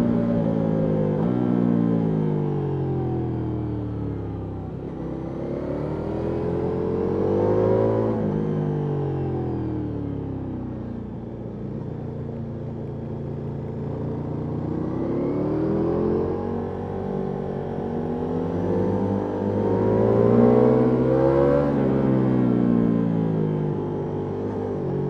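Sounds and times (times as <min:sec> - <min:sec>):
motorcycle engine revving: 0:04.8 - 0:08.4, 0:13.8 - 0:23.1.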